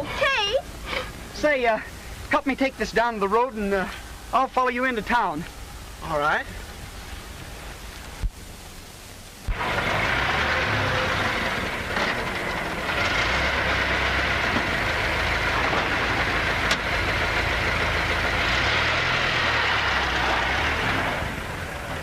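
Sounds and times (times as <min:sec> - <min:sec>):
racing car engine running: 0:09.5 - 0:22.0.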